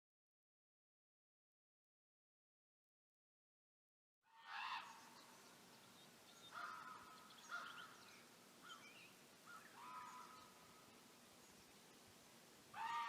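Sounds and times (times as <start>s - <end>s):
bird calling: 4.4s - 11.8s, 12.7s - 13.0s
steady background hiss: 4.5s - 13.0s.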